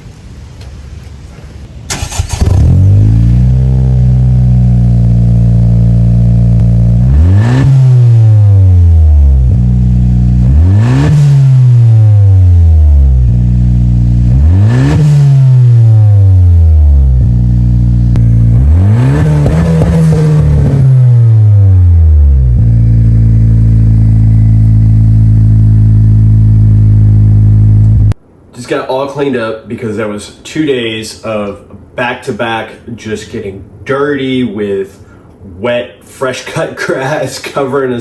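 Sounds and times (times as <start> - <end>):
car engine idling: 0.0 - 28.2
car engine cranking: 1.9 - 28.2
car engine revving: 1.9 - 28.2.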